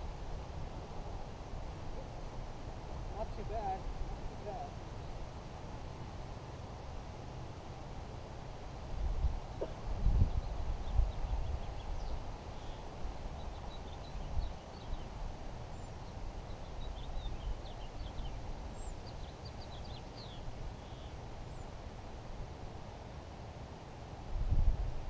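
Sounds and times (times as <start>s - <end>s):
small birds chirping: 9.5s - 21.8s.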